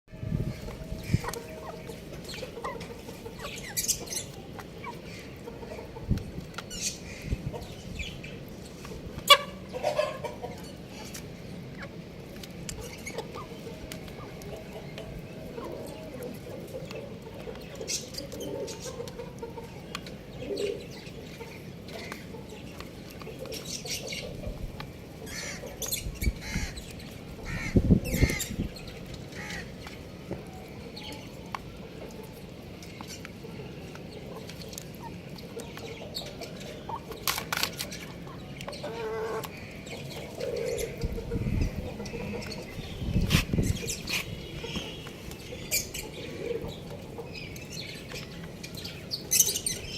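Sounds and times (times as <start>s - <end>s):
chicks pecking and scuffling: 0.2s - 49.9s
chick calls: 0.4s - 7.7s.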